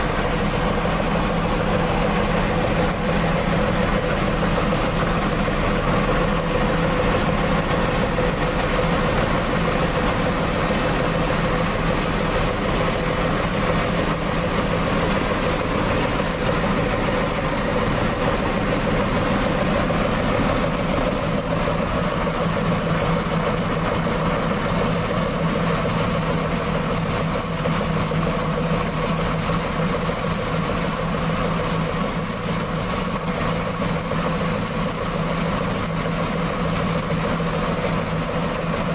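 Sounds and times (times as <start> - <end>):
diesel engine running: 0.0 - 38.9
rice mill hum and rattle: 0.0 - 38.9.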